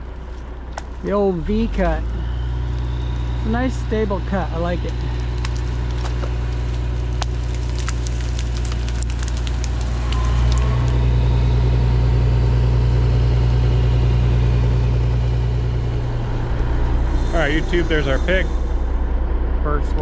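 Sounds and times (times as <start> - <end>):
diesel engine running: 0.0 - 20.0
sharp cracks and clicks: 4.8 - 11.1.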